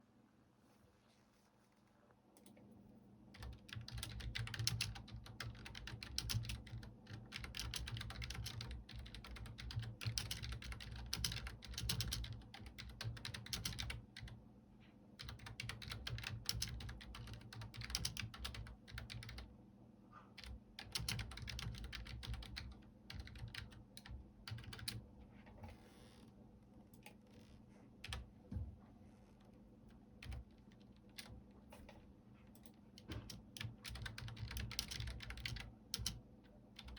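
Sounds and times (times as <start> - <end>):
computer keyboard typing: 3.3 - 14.4, 15.2 - 19.5, 20.4 - 25.0, 28.0 - 28.3, 30.2 - 32.0, 32.6 - 36.9.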